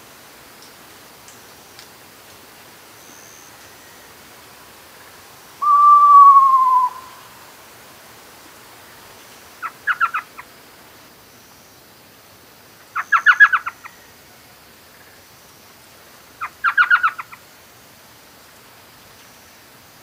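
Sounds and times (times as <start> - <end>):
owl calling: 5.6 - 7.4, 9.6 - 10.4, 13.0 - 13.9, 16.4 - 17.4.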